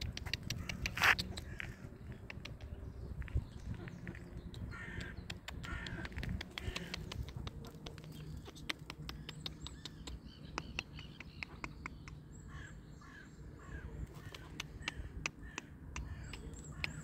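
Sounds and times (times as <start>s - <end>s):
sharp clicks: 0.0s - 1.5s, 2.2s - 2.7s, 4.5s - 12.2s, 14.2s - 17.0s
birds calling: 0.0s - 17.0s.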